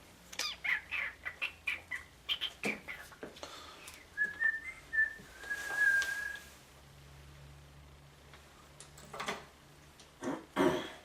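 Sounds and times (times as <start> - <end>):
rustling: 3.2 - 6.7
person whistling: 4.2 - 6.4.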